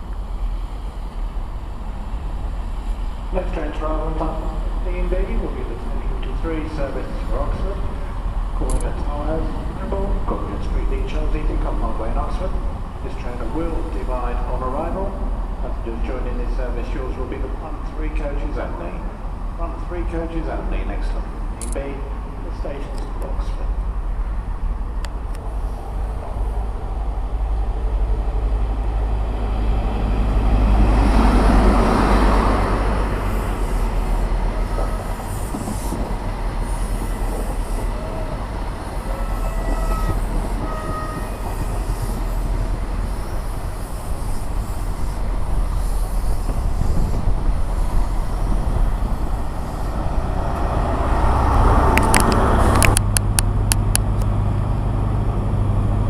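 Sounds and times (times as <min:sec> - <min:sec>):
train rumble: 0:00.0 - 0:56.0
high squeals: 0:39.0 - 0:42.5
sharp clicks: 0:51.9 - 0:54.3.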